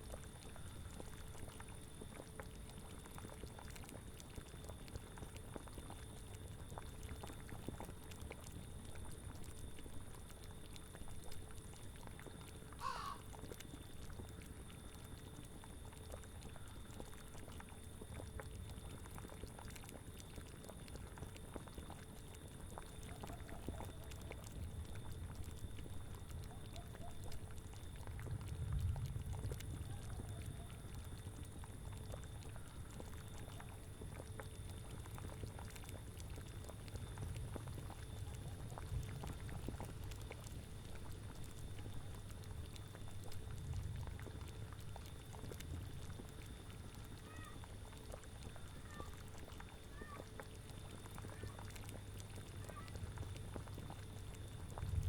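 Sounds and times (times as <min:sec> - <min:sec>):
cauldron bubbling: 0:00.0 - 0:55.0
faint animal calls: 0:12.7 - 0:13.4, 0:26.4 - 0:27.4, 0:47.2 - 0:47.6.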